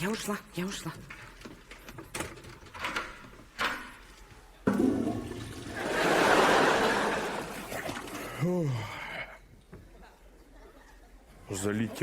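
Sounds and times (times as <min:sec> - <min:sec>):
toilet flushing: 0:04.6 - 0:08.4.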